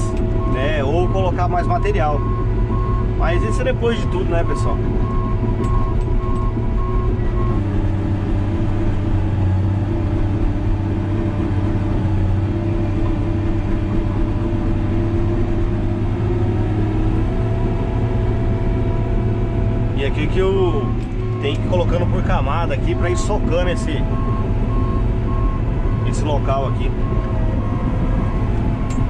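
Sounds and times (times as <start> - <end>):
bulldozer diesel engine running: 0.0 - 29.0
repeating beep: 20.6 - 29.0.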